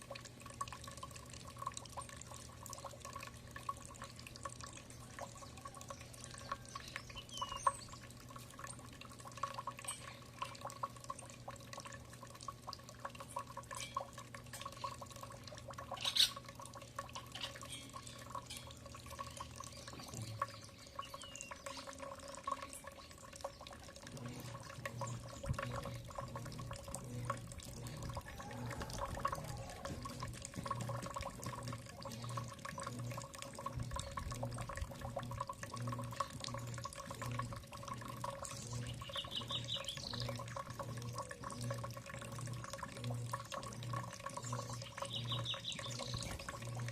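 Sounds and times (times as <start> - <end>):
bird chirps: 5.4 - 8.0, 19.3 - 21.9, 38.6 - 40.3, 44.4 - 46.4
steady low hum: 22.0 - 46.9
birds pecking clicks and taps: 27.7 - 37.4.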